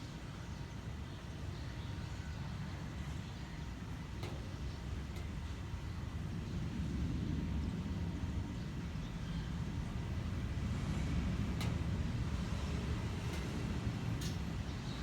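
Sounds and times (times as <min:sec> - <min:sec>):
jet engines low rumble: 0:00.0 - 0:15.0.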